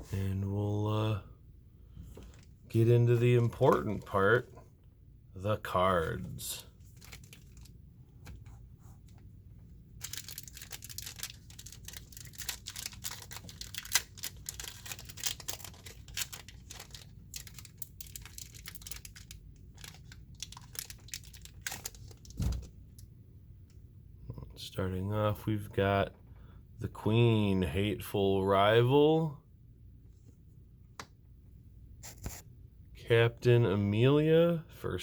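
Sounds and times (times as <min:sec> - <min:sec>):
foil wrapper tearing and crinkling: 0:06.9 - 0:07.7, 0:10.0 - 0:22.4.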